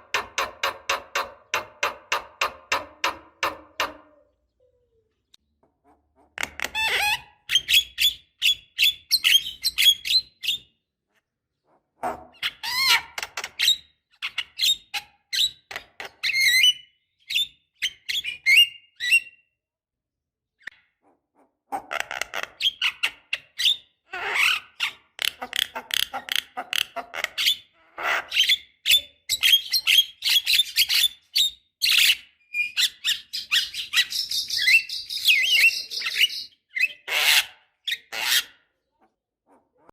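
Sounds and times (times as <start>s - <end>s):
bird chattering song: 28.4s - 37.1s.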